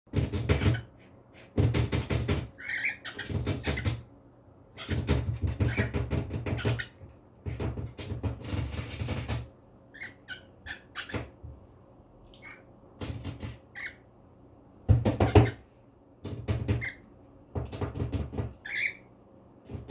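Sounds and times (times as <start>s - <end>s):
bird toys clattering and knocking: 0.1s - 0.9s, 1.6s - 4.0s, 4.8s - 9.5s, 13.0s - 13.8s, 16.2s - 17.0s, 17.6s - 18.9s.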